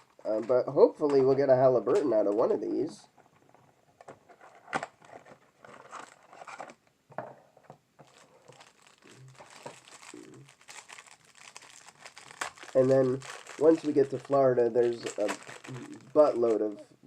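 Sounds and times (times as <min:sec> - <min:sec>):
packaging crinkling and tearing: 0:04.6 - 0:06.8, 0:08.0 - 0:16.8.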